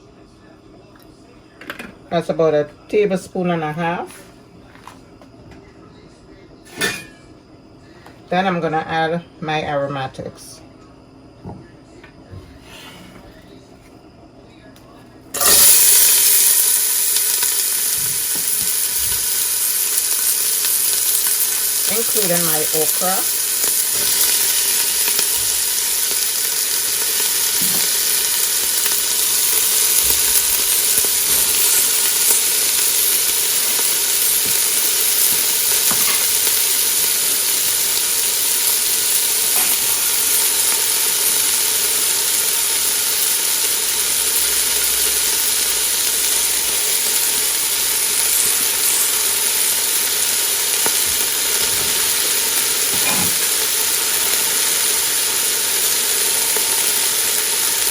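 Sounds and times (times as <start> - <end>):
vegetables sizzling in hot oil: 15.4 - 57.9.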